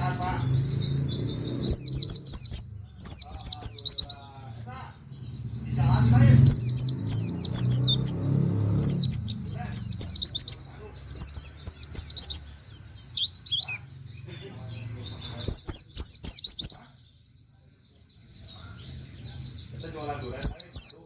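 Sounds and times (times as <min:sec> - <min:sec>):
small bird singing rapid chirps: 0:00.0 - 0:21.0.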